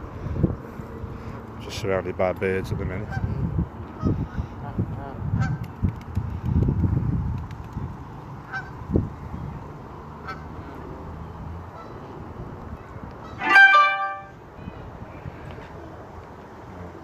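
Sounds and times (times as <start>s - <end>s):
geese honking: 13.2s - 14.3s.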